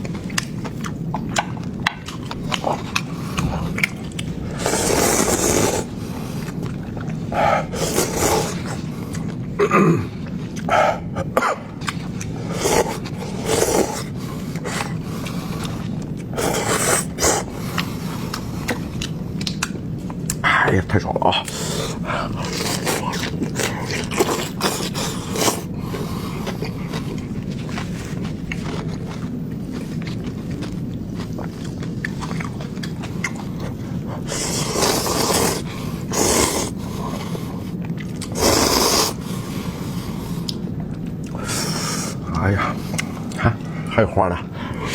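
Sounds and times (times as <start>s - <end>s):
scraping eating noises: 0.0s - 44.9s.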